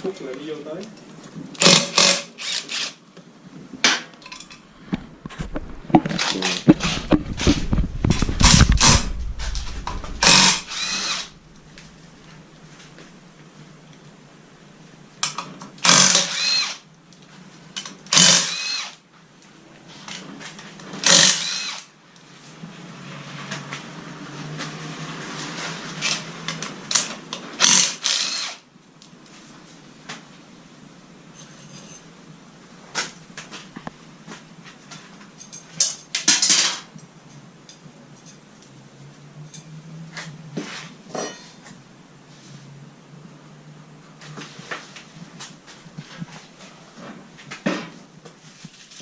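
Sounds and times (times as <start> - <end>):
handheld power tool running: 1.6 - 3.0, 8.4 - 11.4, 15.8 - 16.8, 18.1 - 19.0, 21.0 - 21.9, 27.6 - 28.6.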